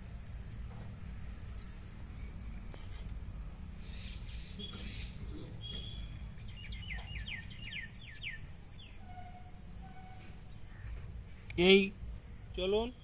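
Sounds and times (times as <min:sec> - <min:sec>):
steady low rumble: 0:00.0 - 0:13.0
bird chirping: 0:03.7 - 0:11.7.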